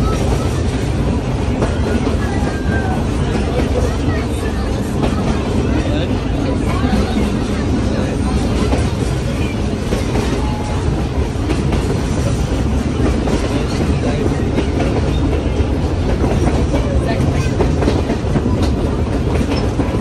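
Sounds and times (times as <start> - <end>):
train carriage rumbling on rails: 0.0 - 20.0
wheels clicking over rail joints: 8.4 - 20.0.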